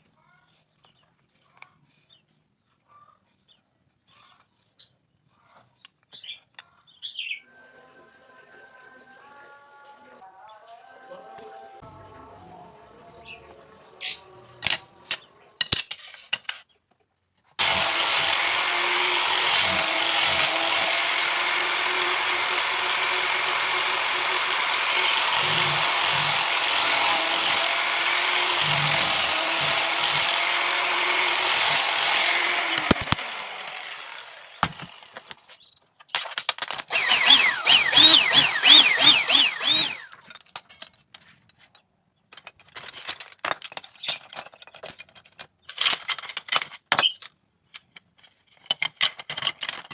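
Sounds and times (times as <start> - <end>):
electric power tool cutting bamboo: 17.6 - 35.4, 36.7 - 40.2.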